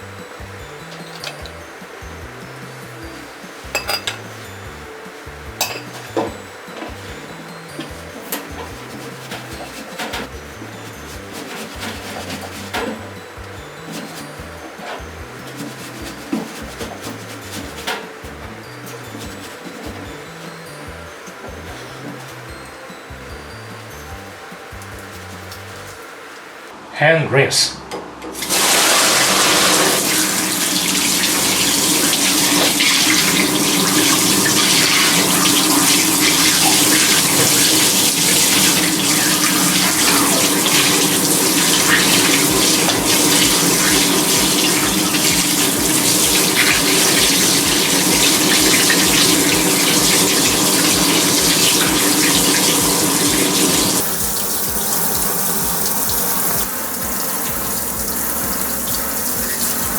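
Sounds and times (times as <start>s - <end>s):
tap running into a sink: 28.4s - 59.9s.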